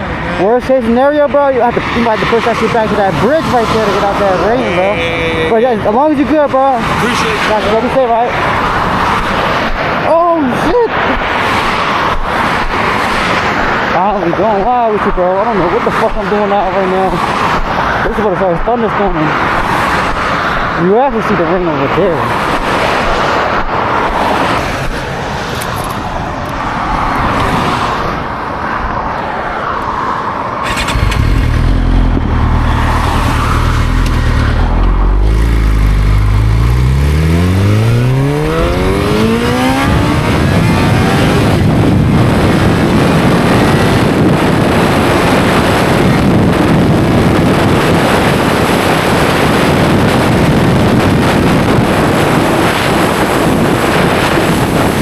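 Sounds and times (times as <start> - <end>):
wind on microphone: 1.5 - 29.1, 30.6 - 55.0
motorcycle engine accelerating: 30.6 - 55.0.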